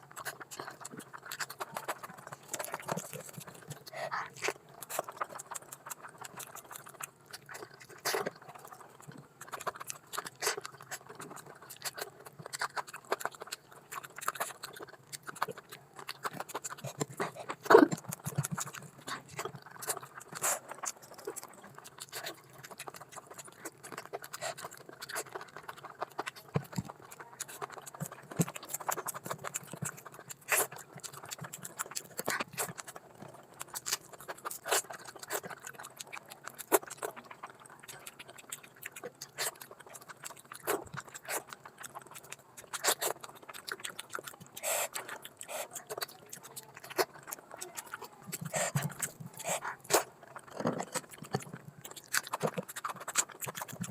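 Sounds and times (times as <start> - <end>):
wet chewing: 0.0 - 53.9
lip smacks: 9.0 - 53.9
mouth clicks: 37.9 - 53.9.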